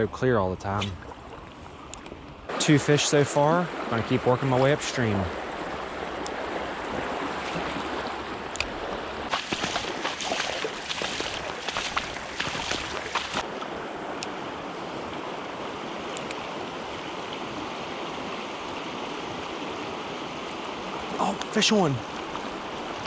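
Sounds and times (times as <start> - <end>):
creek water rushing: 2.5 - 23.0
single clicks: 8.5 - 8.8, 16.1 - 16.4.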